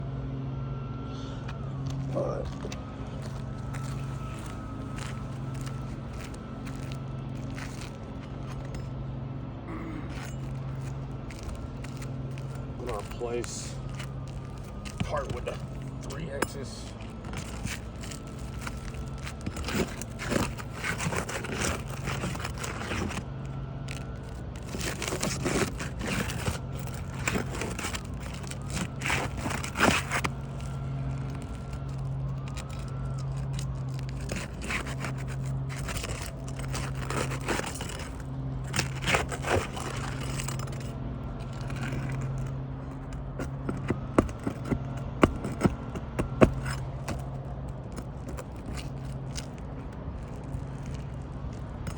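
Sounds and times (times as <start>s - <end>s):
steady low hum: 0.0s - 51.9s
tools scraping and knocking: 10.1s - 49.6s.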